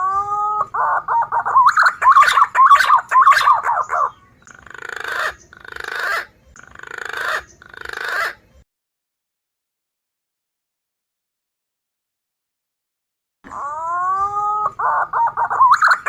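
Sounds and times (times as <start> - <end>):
wavering whistled bird notes: 0.0 - 8.4, 13.5 - 16.0
raspy bird calls: 0.0 - 8.6, 13.5 - 16.0.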